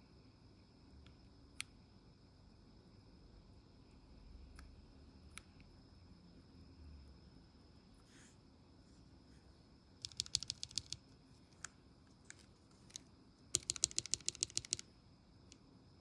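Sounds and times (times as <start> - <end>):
mechanical keyboard typing: 10.0 - 11.0, 12.3 - 14.9.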